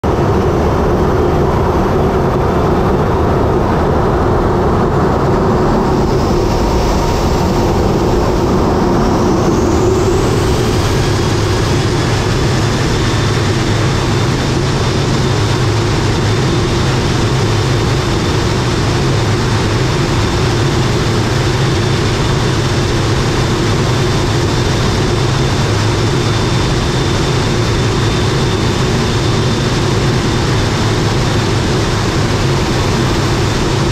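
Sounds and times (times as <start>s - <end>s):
airliner rush and drone: 0.0s - 33.9s
faint rising whine: 0.1s - 22.4s.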